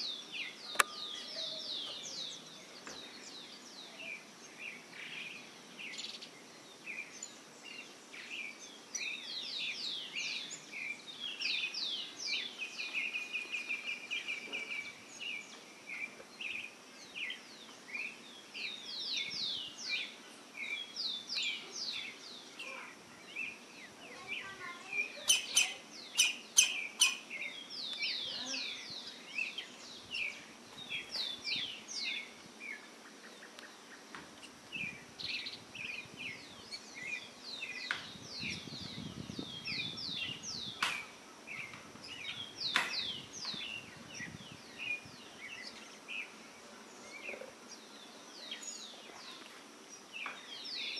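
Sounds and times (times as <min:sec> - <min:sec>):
birds chirping: 0:00.0 - 0:50.9
sharp loud clicks: 0:40.8 - 0:41.1.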